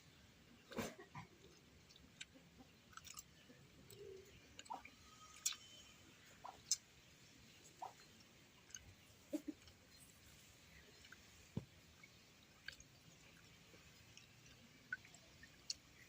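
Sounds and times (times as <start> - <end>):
wet chewing smacks and clicks: 1.4 - 5.6, 7.8 - 9.8, 10.9 - 16.0.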